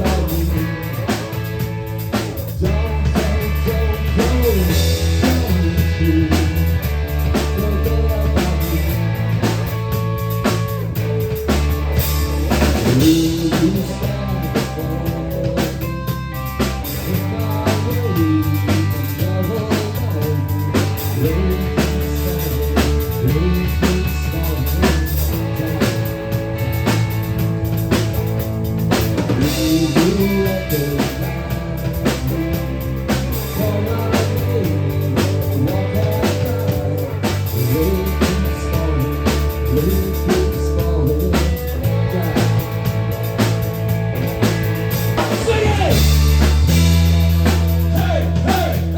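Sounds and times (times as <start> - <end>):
rock song with drums bass guitar: 0.0 - 48.9
person singing: 2.4 - 9.4, 12.3 - 26.8, 29.2 - 43.0, 45.2 - 47.0, 47.8 - 48.9.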